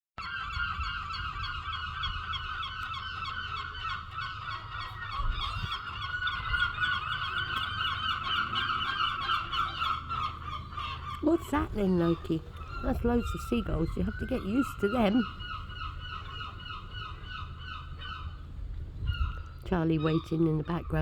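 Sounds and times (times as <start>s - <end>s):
seagulls calling: 0.2s - 21.0s.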